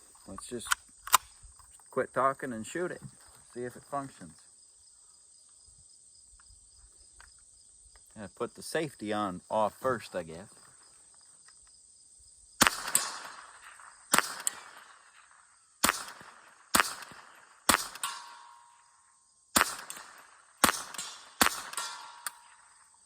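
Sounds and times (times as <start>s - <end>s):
rifle action clacking: 0.7s - 1.3s
rifle shots cracking: 12.6s - 23.0s.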